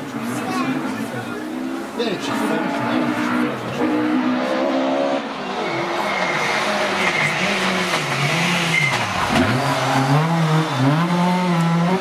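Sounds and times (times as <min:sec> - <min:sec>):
rally car engine braking and accelerating: 0:00.1 - 0:12.0.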